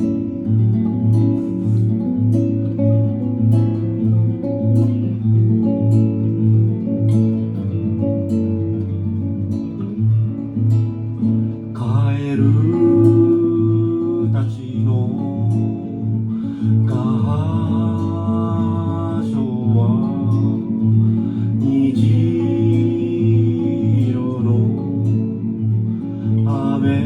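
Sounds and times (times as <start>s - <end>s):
acoustic guitar plucking: 0.0s - 27.0s
person singing: 11.7s - 27.0s.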